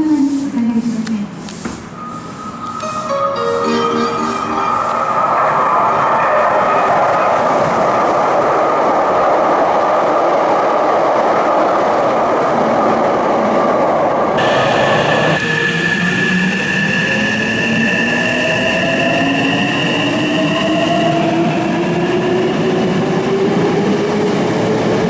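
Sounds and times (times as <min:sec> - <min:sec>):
electric train rumbling on track: 0:00.0 - 0:25.0
steady high tones: 0:01.9 - 0:06.2.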